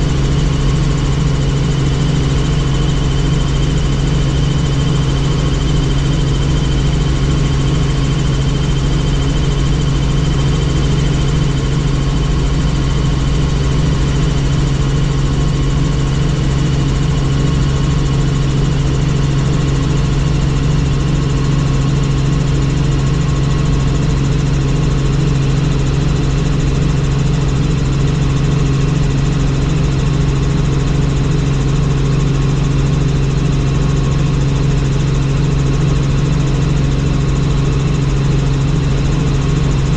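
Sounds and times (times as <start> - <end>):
helicopter deep drone: 0.0 - 39.9.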